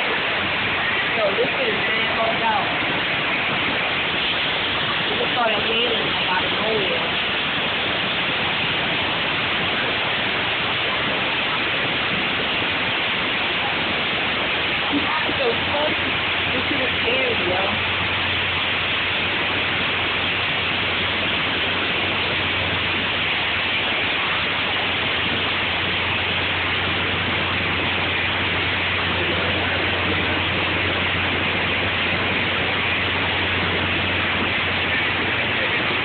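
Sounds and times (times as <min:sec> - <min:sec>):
heavy rain and hail: 0:00.0 - 0:36.0.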